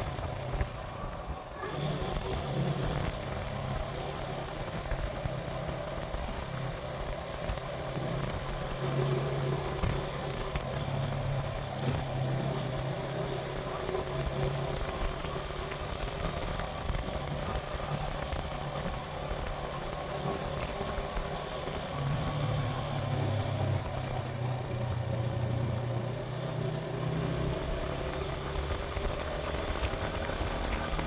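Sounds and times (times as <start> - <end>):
motorcycle engine running: 0.0 - 31.0
steady rushing noise: 0.0 - 31.0.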